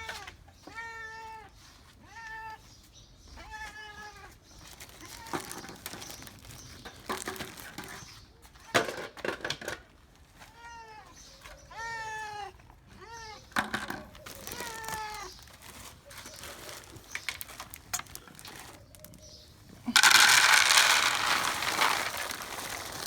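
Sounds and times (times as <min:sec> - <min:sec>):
cat meowing: 0:00.0 - 0:02.7, 0:03.3 - 0:04.4, 0:10.4 - 0:13.6, 0:14.2 - 0:15.5.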